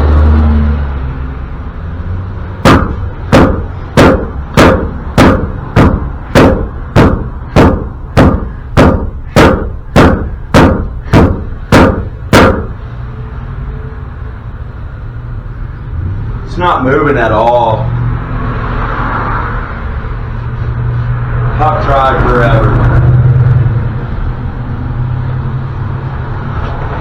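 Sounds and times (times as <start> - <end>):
hammer striking metal: 2.6 - 12.8.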